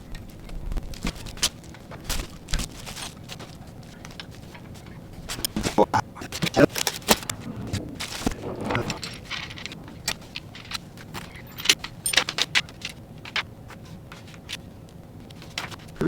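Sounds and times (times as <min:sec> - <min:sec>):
metal tools clinking: 0:06.4 - 0:13.4.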